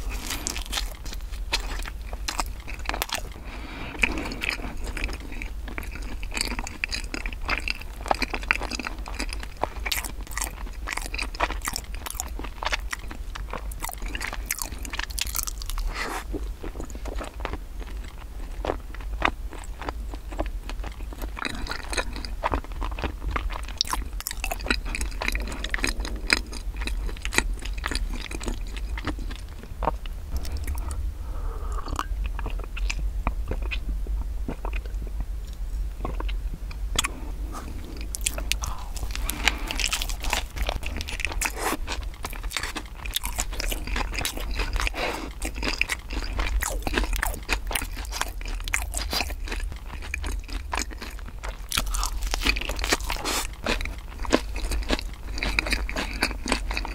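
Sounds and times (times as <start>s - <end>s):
crunching of bread crusts: 0.0s - 31.0s, 34.5s - 56.9s
wet mouth sounds: 23.8s - 33.8s, 37.0s - 49.5s
person drinking milk: 29.8s - 32.6s, 37.0s - 42.8s.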